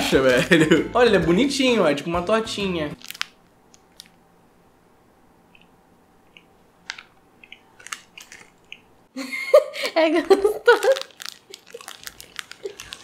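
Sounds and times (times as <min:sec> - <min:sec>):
person chewing: 0:06.3 - 0:09.0, 0:11.0 - 0:13.0
mouth clicks and smacks: 0:07.4 - 0:08.9.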